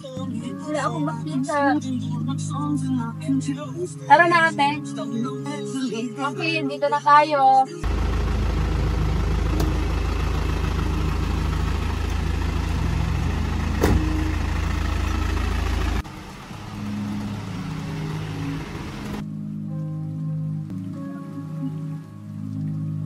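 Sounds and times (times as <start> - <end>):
car engine idling: 7.8 - 19.2.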